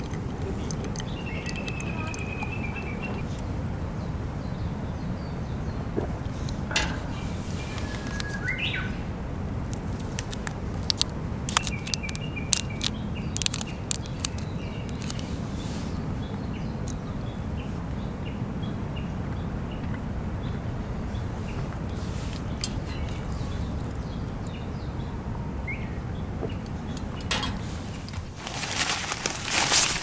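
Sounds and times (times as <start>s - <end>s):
birds chirping: 0.0s - 30.0s
low background noise: 0.0s - 30.0s
sharp clicks: 9.7s - 15.3s.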